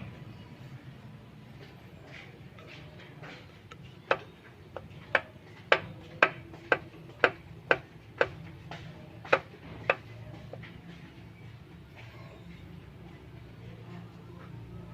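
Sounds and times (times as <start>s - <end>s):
engine running with ticking knock: 3.7s - 11.2s.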